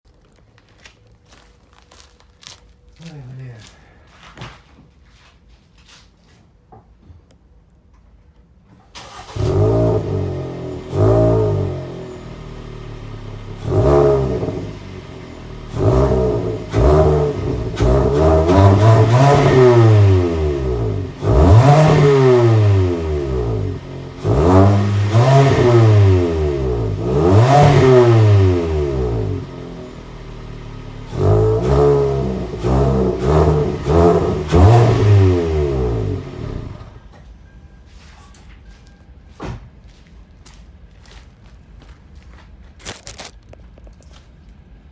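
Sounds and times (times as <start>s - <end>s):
car engine revving: 9.0s - 37.0s.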